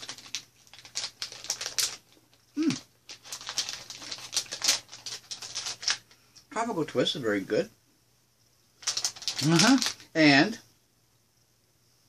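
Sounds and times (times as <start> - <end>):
person humming mm: 2.6 - 2.8.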